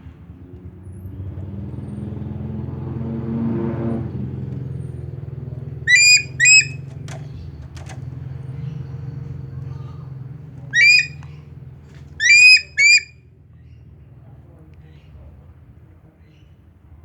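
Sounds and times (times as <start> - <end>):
vehicle engine hum: 0.0 - 15.9
eagle shrill calls: 5.9 - 7.0, 10.8 - 11.2, 12.2 - 13.1.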